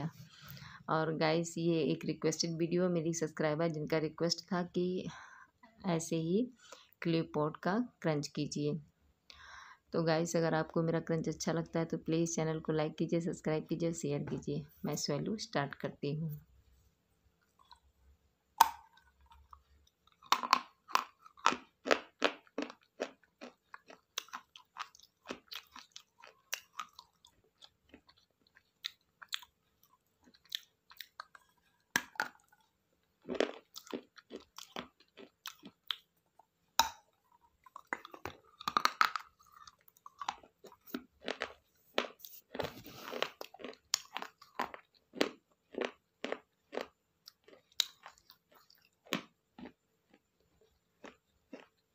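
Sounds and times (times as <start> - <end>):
clay pot pieces being chewed: 17.4 - 18.0, 18.6 - 51.9.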